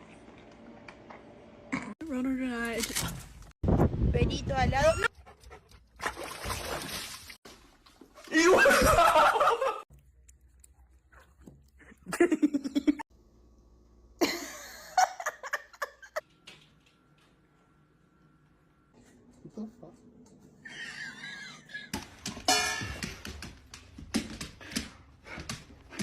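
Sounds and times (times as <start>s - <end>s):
people laughing: 8.4s - 9.8s, 20.7s - 22.0s.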